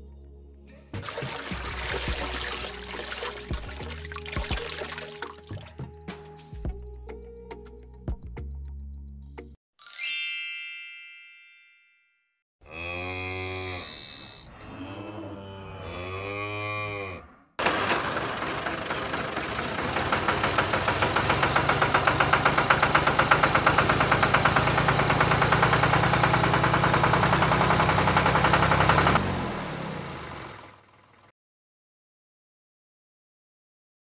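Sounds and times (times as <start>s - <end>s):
cow mooing: 12.6s - 17.5s
tractor engine chugging: 17.6s - 31.3s.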